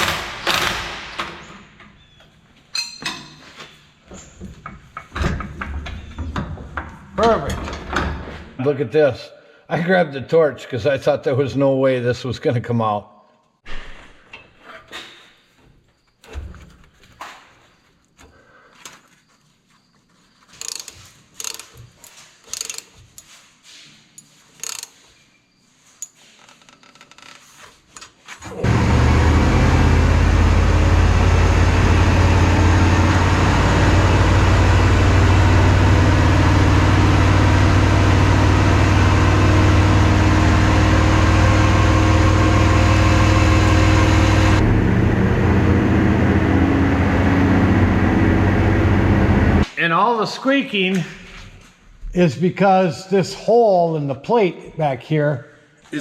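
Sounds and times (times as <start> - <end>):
clanks on metal parts: 0.0 - 2.0, 2.7 - 8.5, 20.5 - 23.3
engine idling: 28.6 - 49.6.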